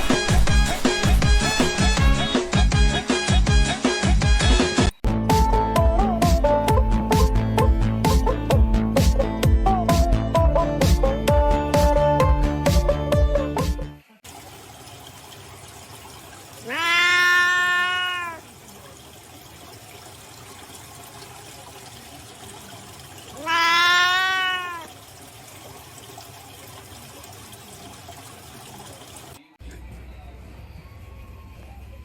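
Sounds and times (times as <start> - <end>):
cat meowing: 16.6 - 18.4, 23.4 - 24.9.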